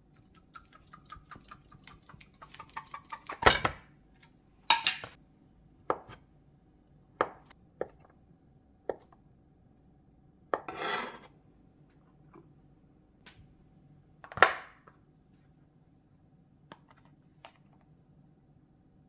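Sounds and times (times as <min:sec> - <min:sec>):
kitchen utensils knocking and clinking: 0:02.5 - 0:03.8, 0:04.7 - 0:05.2
utensils clattering: 0:04.7 - 0:05.2.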